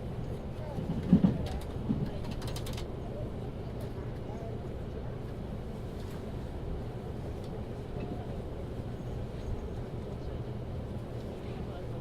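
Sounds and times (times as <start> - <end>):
train cabin rumble: 0.0 - 3.2.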